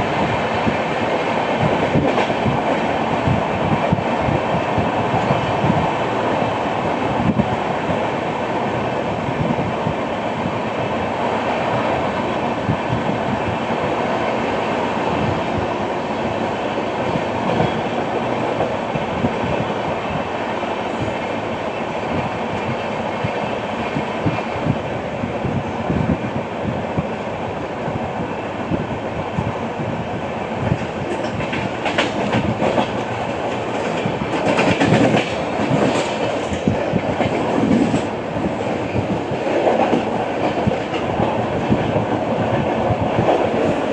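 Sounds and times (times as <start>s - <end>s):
train wheels clattering over track: 0.0s - 8.2s, 12.1s - 24.9s, 30.5s - 43.9s.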